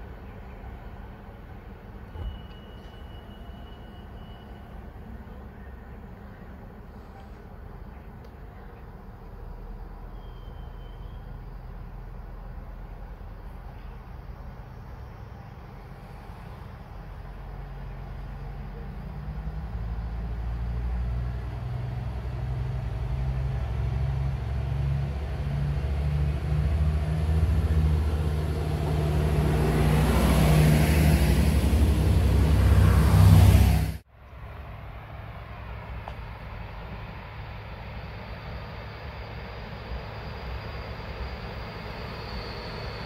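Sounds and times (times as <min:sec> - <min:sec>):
faint steady rumble: 0:00.0 - 0:43.0
train passing with rushing wheels: 0:00.0 - 0:43.0.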